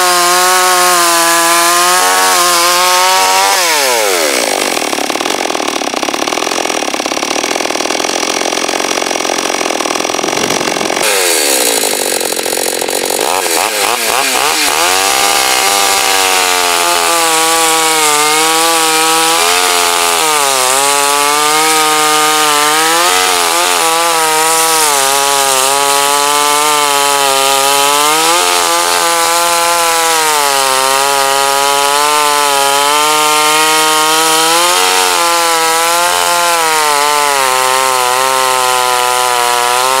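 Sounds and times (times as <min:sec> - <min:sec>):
chainsaw cutting wood: 0:00.0 - 0:40.0.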